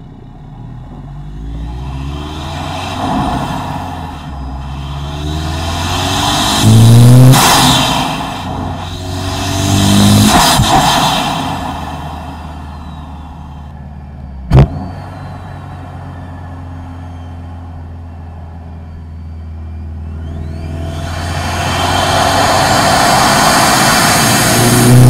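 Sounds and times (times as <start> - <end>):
car engine hum: 0.0 - 25.0
intake rush and turbo spool: 1.4 - 18.2, 19.9 - 25.0
turbo whistle: 3.9 - 18.0, 18.7 - 25.0.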